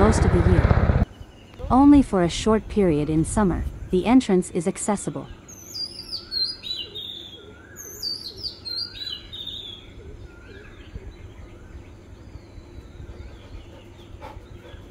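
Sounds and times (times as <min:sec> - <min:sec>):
low rumble: 0:00.0 - 0:04.0
birds chirping: 0:00.0 - 0:14.9.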